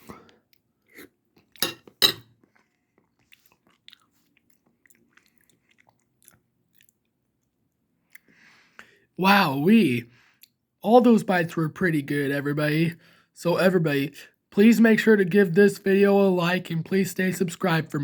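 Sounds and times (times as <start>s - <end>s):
child chewing food: 0.0s - 8.9s.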